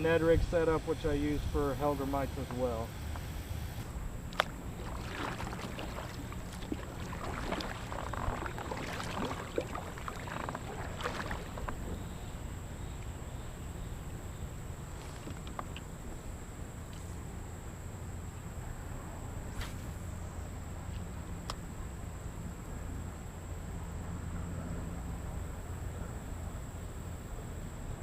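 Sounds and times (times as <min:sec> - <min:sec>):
steady low rumble: 0:00.0 - 0:26.2
knocks and clicks of kayak gear: 0:04.3 - 0:05.4, 0:15.2 - 0:15.9.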